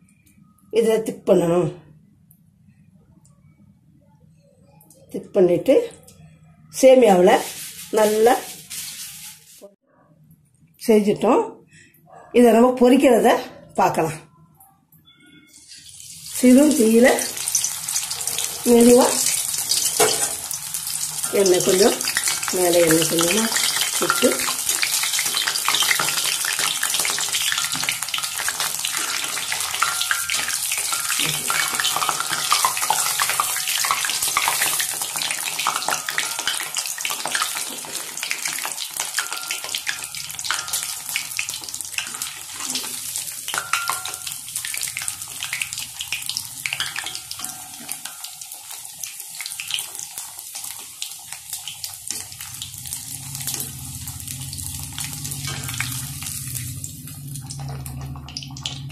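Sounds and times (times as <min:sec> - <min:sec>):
food sizzling in oil: 0:06.8 - 0:09.8, 0:15.5 - 0:58.9.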